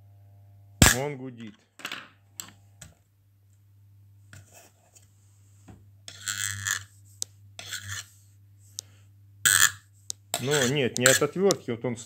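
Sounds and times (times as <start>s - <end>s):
rasping metal scrape: 6.1s - 6.9s, 7.6s - 8.2s.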